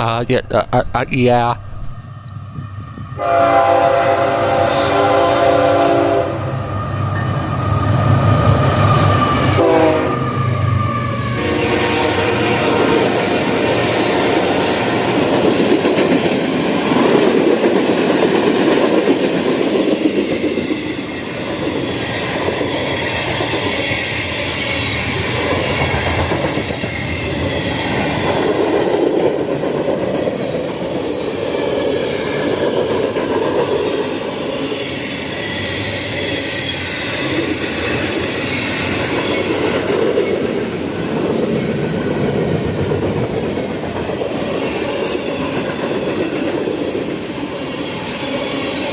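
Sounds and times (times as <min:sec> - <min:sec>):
train wheels clattering over rails: 0:14.4 - 0:48.9.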